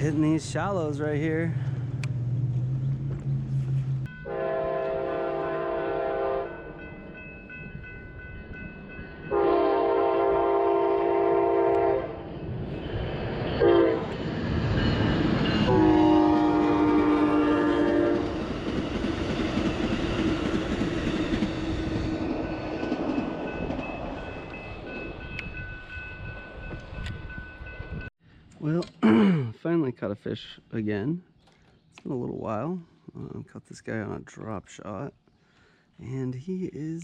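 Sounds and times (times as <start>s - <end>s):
train horn blasts: 4.2s - 6.6s, 9.3s - 12.2s, 13.6s - 14.2s, 15.6s - 18.4s
train wheels clattering on rails: 17.7s - 27.3s.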